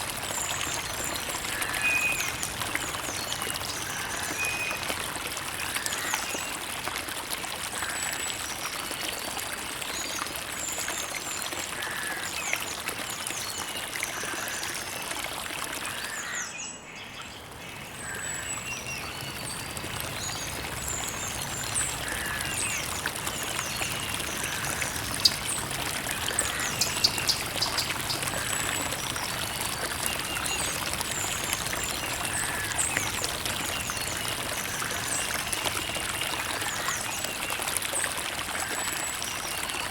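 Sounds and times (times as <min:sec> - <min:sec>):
creek water trickling: 0:00.0 - 0:39.9
small birds chirping: 0:26.4 - 0:28.3.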